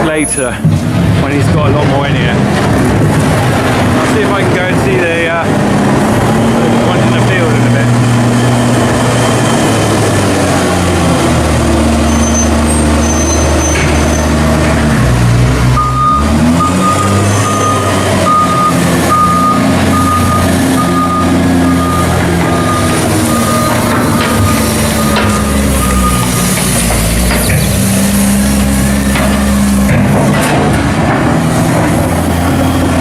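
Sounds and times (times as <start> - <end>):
heavy diesel engine running hard: 0.0 - 33.0
reversing alarm beeping: 12.1 - 14.3, 15.7 - 27.2.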